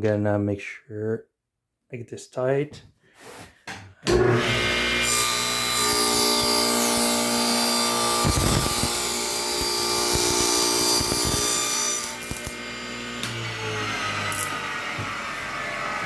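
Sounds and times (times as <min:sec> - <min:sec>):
table saw ripping wood: 0:04.1 - 0:16.0.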